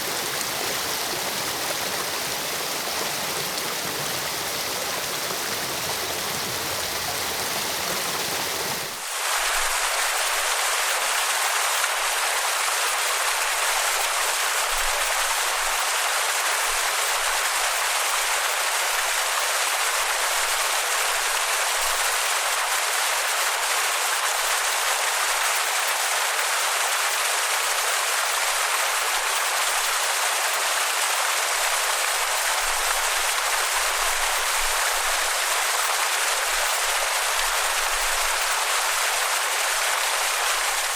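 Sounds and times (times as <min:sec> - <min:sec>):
waterfall rushing: 0:00.0 - 0:12.7.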